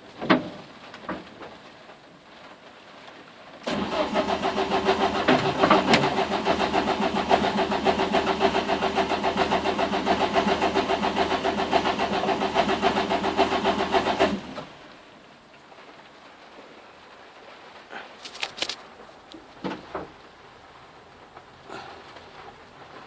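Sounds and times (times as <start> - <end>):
car engine cranking on starter: 3.6 - 14.8.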